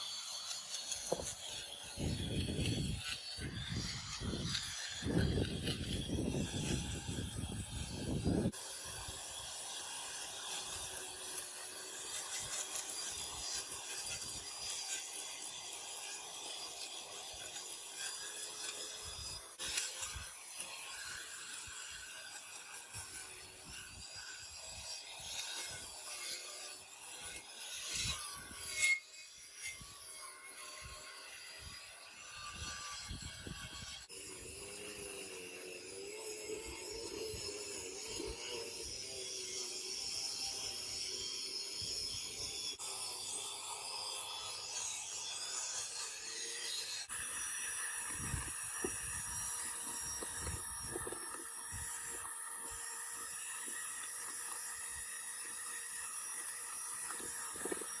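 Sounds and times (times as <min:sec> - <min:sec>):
scraping and rubbing by hand: 0:00.0 - 0:08.6.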